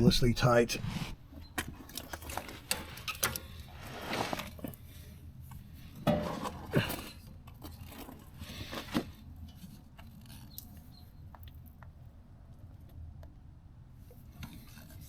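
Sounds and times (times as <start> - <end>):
scraping rustles: 0.4 - 5.0.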